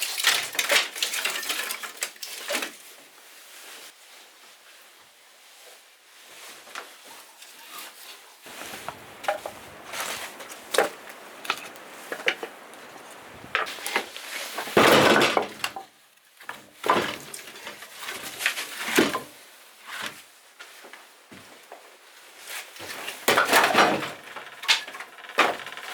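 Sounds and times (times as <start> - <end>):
objects knocking and clinking: 8.5 - 13.7
scraping clatter: 8.5 - 14.0.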